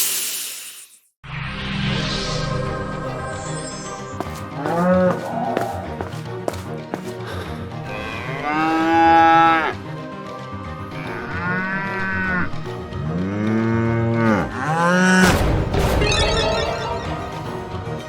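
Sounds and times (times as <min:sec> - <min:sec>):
background music: 0:02.3 - 0:18.0
cow mooing: 0:07.9 - 0:09.8, 0:10.9 - 0:15.2.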